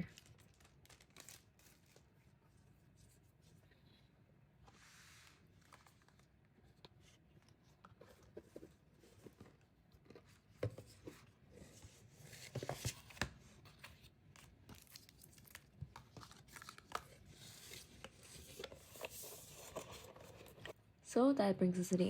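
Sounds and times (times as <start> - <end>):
plastic sleeves rustling: 0.0 - 2.4.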